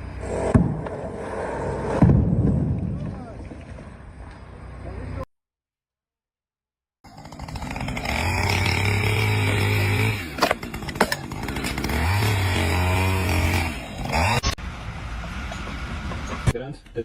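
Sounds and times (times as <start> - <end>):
power tool motor running: 7.1 - 14.6.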